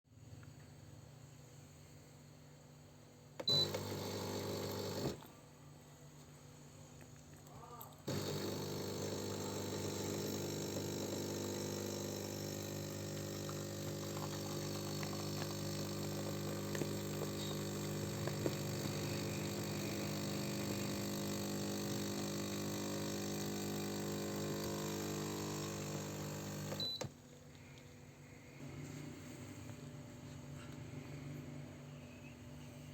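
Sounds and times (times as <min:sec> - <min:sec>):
coffee machine humming: 0:03.4 - 0:05.4, 0:08.0 - 0:27.1.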